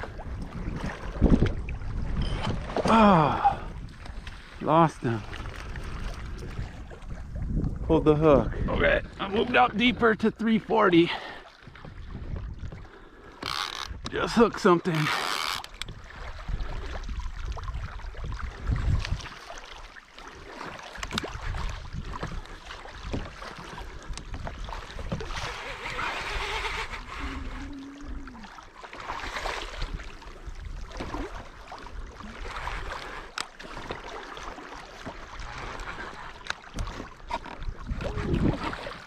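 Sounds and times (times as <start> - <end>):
wind on microphone: 0.0 - 10.2, 11.7 - 14.1, 15.8 - 19.5, 21.0 - 28.6, 35.4 - 39.0
water sloshing around kayak: 0.0 - 39.0
gear clicking on hull: 11.6 - 16.0, 20.7 - 28.2, 32.6 - 39.0.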